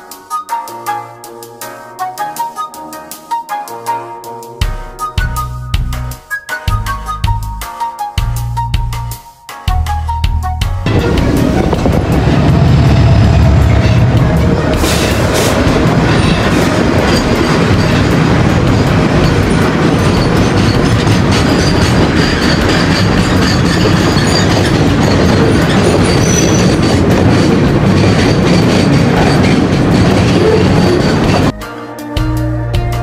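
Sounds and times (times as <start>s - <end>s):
train wheels clattering on rails: 10.9s - 31.5s
wheel squeal: 19.3s - 31.5s.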